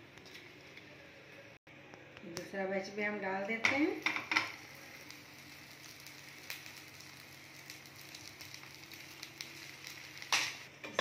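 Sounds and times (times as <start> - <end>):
patties sizzling in oil: 2.4 - 11.0.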